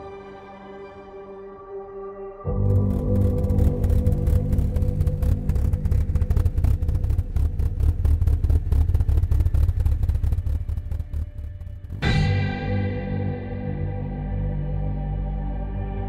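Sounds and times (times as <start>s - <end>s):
car engine throbbing exhaust: 2.5s - 14.1s.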